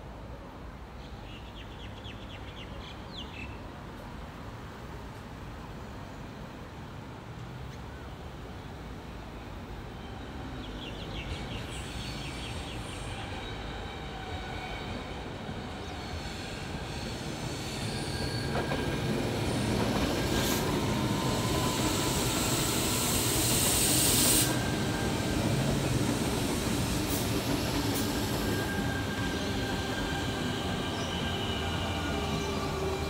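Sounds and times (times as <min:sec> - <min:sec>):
electric train rolling past: 0:08.6 - 0:33.0
loud hiss: 0:20.5 - 0:29.6.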